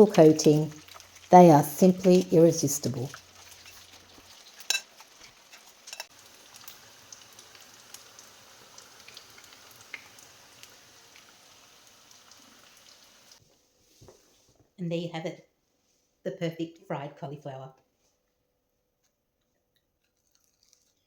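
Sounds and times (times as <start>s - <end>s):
hot oil sizzling and popping: 0.0s - 13.4s.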